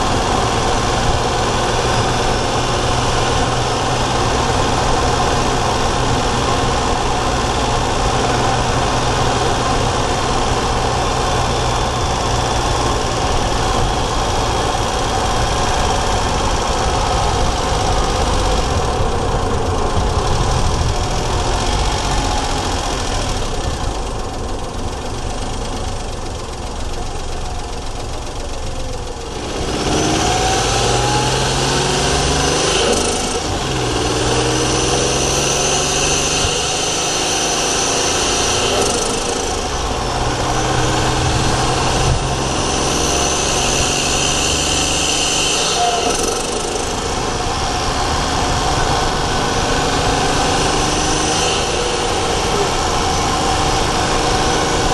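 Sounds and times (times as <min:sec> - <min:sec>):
car engine revving: 0:00.0 - 0:54.9
turbo whistle: 0:42.8 - 0:46.8.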